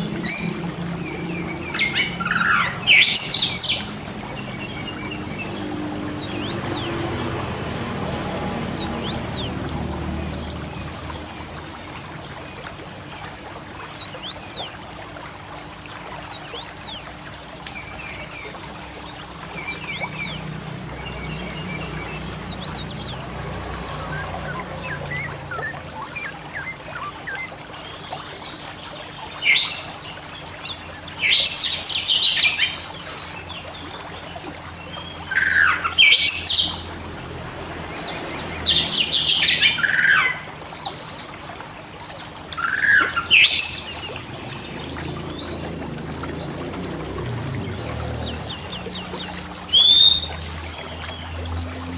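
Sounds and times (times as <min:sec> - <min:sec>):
bird chirping and singing: 0:00.2 - 0:07.1, 0:19.4 - 0:27.9, 0:42.8 - 0:51.9.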